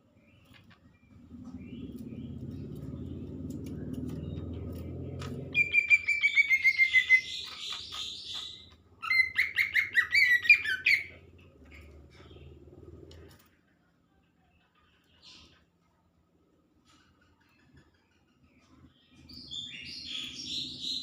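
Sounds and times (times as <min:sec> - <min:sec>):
low hum: 0:00.0 - 0:06.1
bird singing whistled notes: 0:05.5 - 0:11.2, 0:19.3 - 0:21.0.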